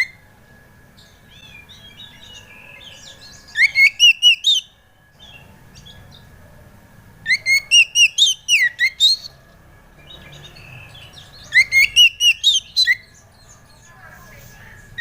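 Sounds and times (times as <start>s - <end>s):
bird singing whistled phrases: 1.3s - 5.4s, 7.3s - 9.3s, 10.6s - 13.1s.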